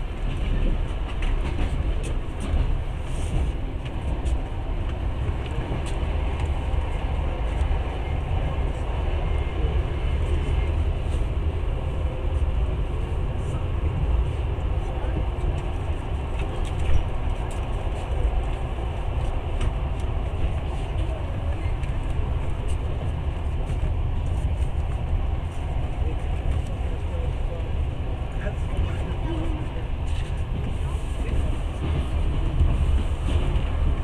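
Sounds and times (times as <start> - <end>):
train rumble from inside carriage: 0.0 - 34.0.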